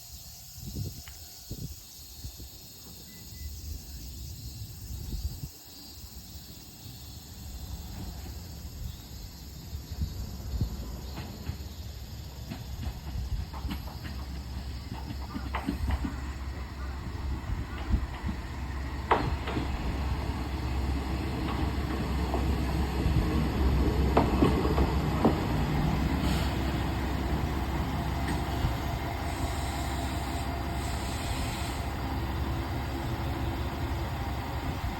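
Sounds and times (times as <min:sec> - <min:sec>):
insects chirping: 0:00.0 - 0:34.9
diesel railcar rumbling: 0:00.1 - 0:34.9
train wheels clacking over rail joints: 0:11.0 - 0:20.1, 0:23.7 - 0:26.8
faint hiss: 0:25.8 - 0:34.9.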